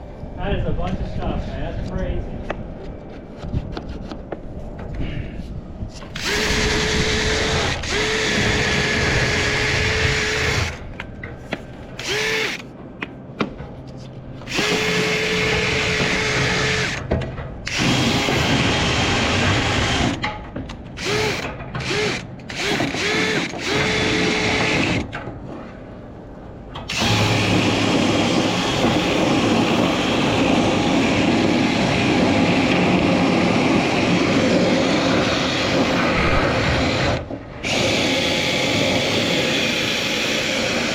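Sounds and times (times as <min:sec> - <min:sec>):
power drill spinning brush rod: 0:06.2 - 0:10.8, 0:12.0 - 0:12.6, 0:21.0 - 0:24.9.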